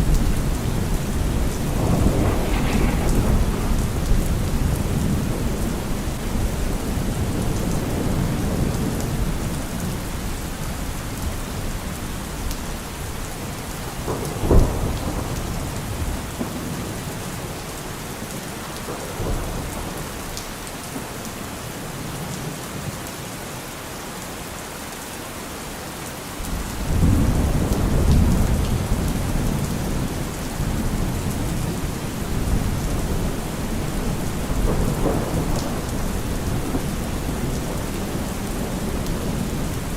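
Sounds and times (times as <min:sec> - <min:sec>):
sharp thunder crack: 0:00.0 - 0:06.5
rolling thunder: 0:00.0 - 0:09.9, 0:13.7 - 0:17.6, 0:26.5 - 0:39.9
steady rain falling: 0:00.0 - 0:39.9.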